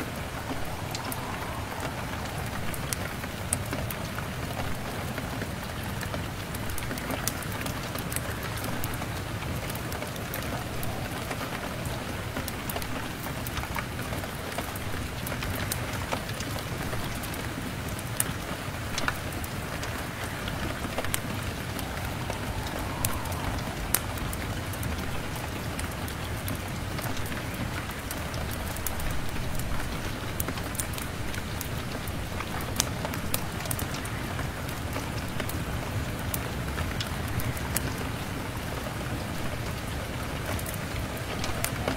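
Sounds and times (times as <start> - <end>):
low rumble: 0.0 - 4.8, 19.8 - 26.0
rain pattering on window: 0.0 - 41.9
wood fire crackling: 0.0 - 41.9.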